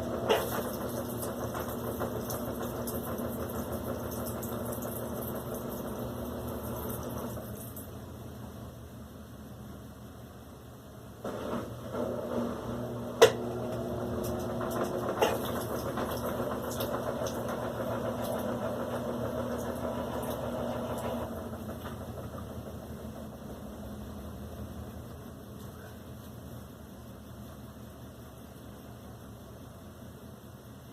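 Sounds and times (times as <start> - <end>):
washing machine humming: 0.0 - 30.9.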